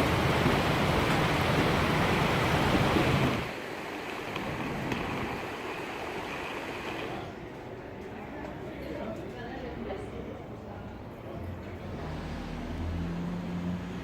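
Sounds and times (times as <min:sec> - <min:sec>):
wind rushing over microphone: 0:00.0 - 0:03.5.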